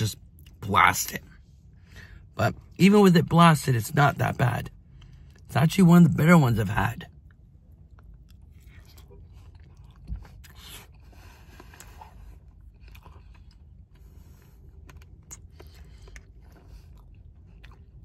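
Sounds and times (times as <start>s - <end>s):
faint chewing: 7.1s - 18.0s.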